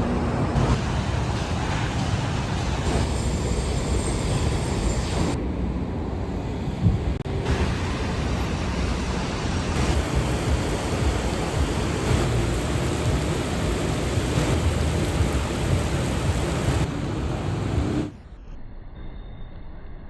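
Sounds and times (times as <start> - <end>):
steady rumbling noise: 0.0 - 18.2
high hiss: 7.3 - 18.1.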